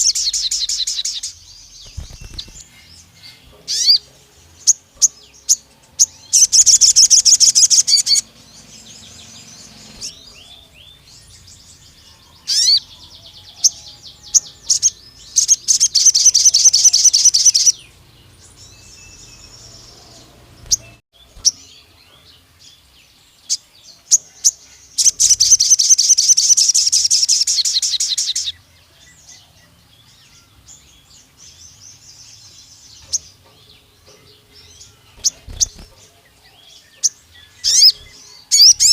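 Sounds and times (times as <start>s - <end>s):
bird chirps and whistled notes: 0.0s - 4.0s, 14.2s - 17.8s, 37.5s - 38.9s
bird singing rapid trills: 0.0s - 38.9s.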